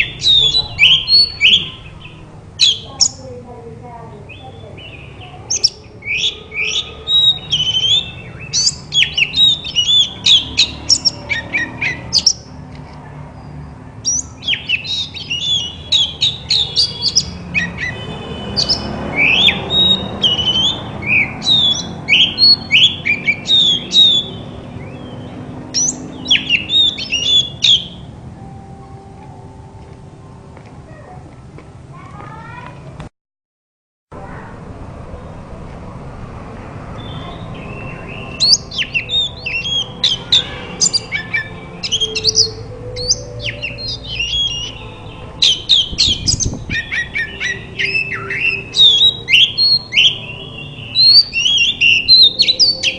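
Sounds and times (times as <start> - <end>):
bird singing whistles and chirps: 0.0 - 3.2, 4.3 - 12.5, 13.4 - 28.0, 37.0 - 52.9.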